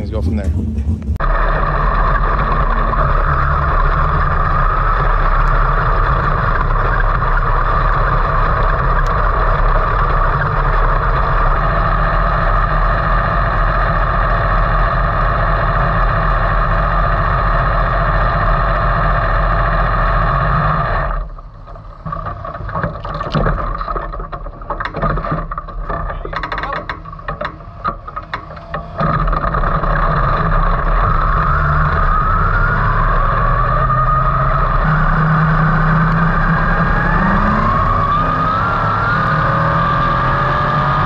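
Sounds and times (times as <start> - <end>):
race car engine idling: 0.0 - 38.5
light clicks and rattles: 21.7 - 30.0.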